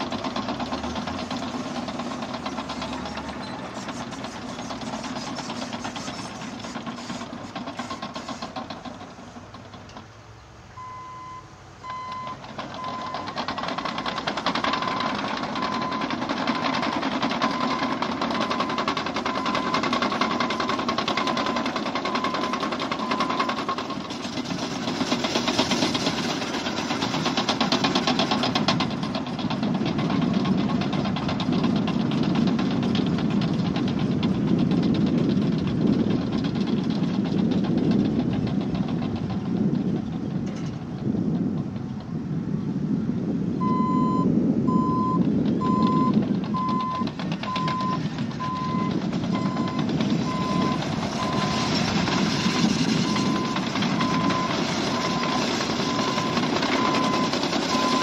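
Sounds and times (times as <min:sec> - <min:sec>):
track clatter: 0:00.0 - 0:10.2, 0:11.9 - 0:43.2, 0:45.0 - 0:58.0
diesel engine running: 0:00.0 - 0:58.0
reverse alarm beeping: 0:10.8 - 0:13.3, 0:43.6 - 0:51.7.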